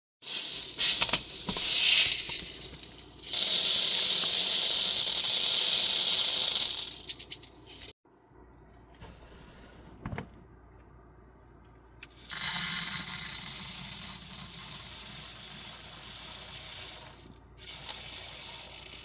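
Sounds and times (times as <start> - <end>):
granules rattling in a scoop: 0.3 - 7.9, 12.1 - 19.0
granules sifting with a hiss: 12.2 - 19.0.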